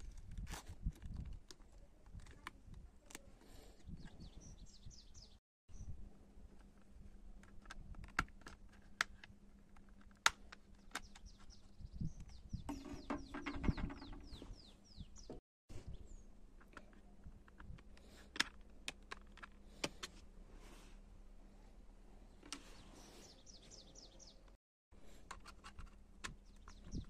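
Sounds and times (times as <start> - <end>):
bird chirping: 3.8 - 6.0, 10.7 - 16.4, 22.2 - 24.6, 26.3 - 27.0.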